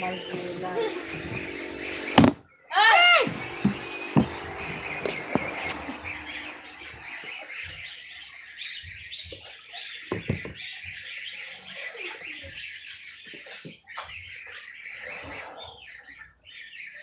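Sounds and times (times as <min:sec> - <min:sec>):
birds chirping: 0:00.0 - 0:17.0
soft knocks: 0:03.3 - 0:05.8.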